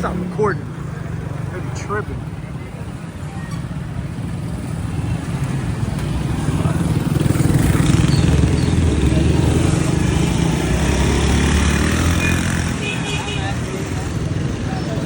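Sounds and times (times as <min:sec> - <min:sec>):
street traffic noise: 0:00.0 - 0:15.0
motorcycle engine running: 0:04.1 - 0:12.6.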